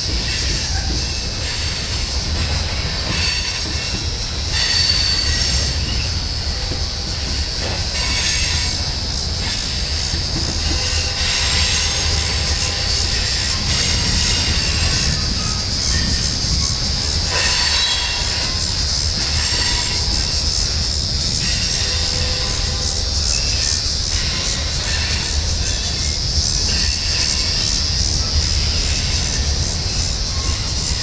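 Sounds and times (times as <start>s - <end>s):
freight cars rumbling: 0.0s - 31.0s
high-pitched wheel squeal: 3.1s - 6.7s, 10.6s - 20.4s.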